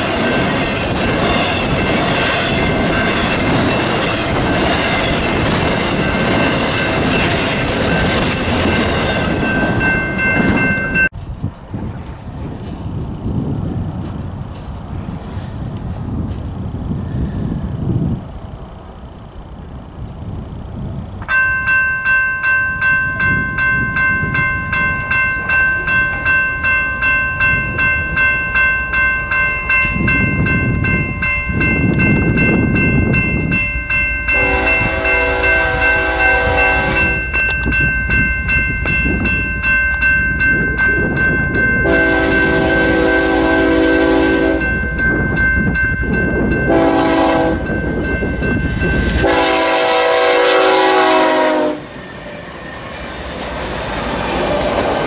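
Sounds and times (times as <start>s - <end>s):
crossing bell ringing: 0.0s - 11.2s, 21.3s - 53.7s
diesel locomotive rumble: 22.6s - 55.0s
train air horn blasts: 34.3s - 37.4s, 41.8s - 44.8s, 46.7s - 47.8s, 49.0s - 51.9s.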